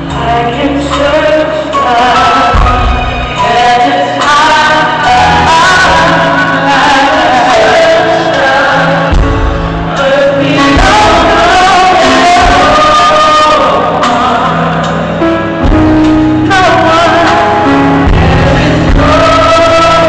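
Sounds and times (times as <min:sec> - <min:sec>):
gospel singing with band: 0:00.0 - 0:20.0.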